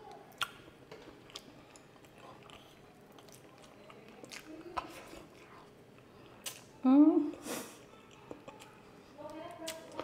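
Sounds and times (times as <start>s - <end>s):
person chewing food: 0.0s - 10.0s
mouth clicks and smacks: 0.3s - 0.6s.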